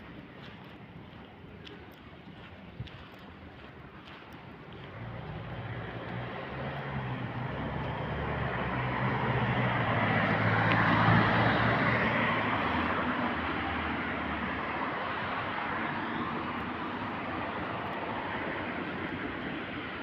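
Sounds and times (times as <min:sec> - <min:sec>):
vehicle passing by: 0:04.7 - 0:20.0.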